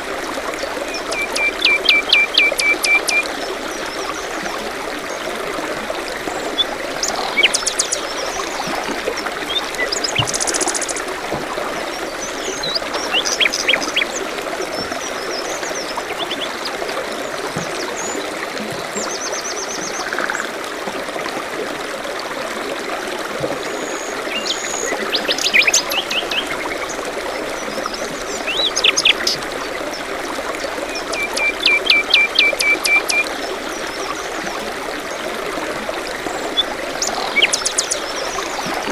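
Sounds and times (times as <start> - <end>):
stream running: 0.0 - 38.9
birds chirping and trilling: 0.9 - 3.2, 6.6 - 8.6, 9.5 - 11.1, 12.1 - 14.2, 36.6 - 38.8
quick evenly spaced bird notes: 0.9 - 3.4, 7.0 - 8.6, 9.5 - 11.1, 31.0 - 33.3, 37.0 - 38.8.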